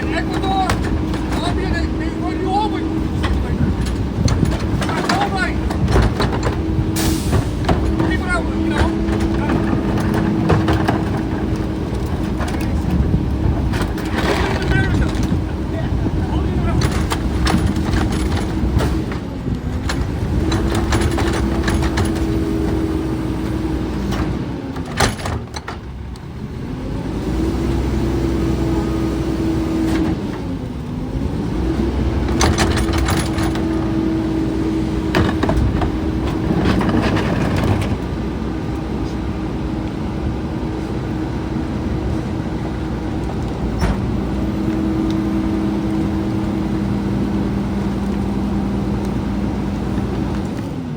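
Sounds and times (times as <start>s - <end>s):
clanks and knocks: 0.0s - 23.0s, 24.0s - 26.0s, 32.2s - 38.2s
truck engine drone: 0.0s - 50.9s.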